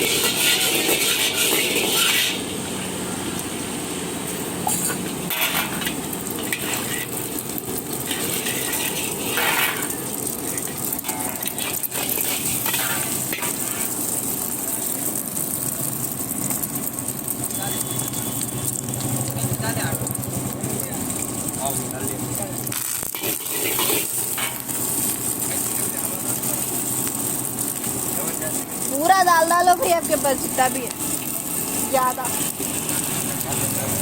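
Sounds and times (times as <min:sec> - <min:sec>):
metal scraping in a pan: 0:00.0 - 0:02.9, 0:04.3 - 0:15.0, 0:22.6 - 0:34.0
noodles sizzling in a pan: 0:00.0 - 0:34.0.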